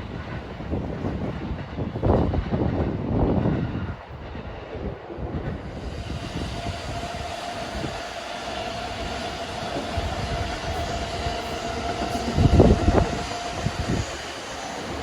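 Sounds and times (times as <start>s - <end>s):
train approaching with whine: 0.0s - 15.0s
wind buffeting microphone: 0.0s - 15.0s.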